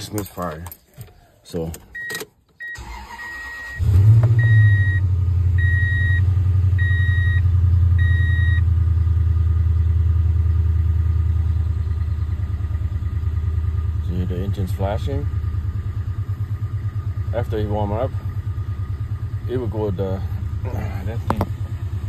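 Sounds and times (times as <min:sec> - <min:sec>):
engine cranking and idling: 0:00.0 - 0:08.1, 0:11.2 - 0:22.0
dashboard warning chime: 0:01.9 - 0:03.8, 0:04.4 - 0:05.0, 0:05.6 - 0:08.6.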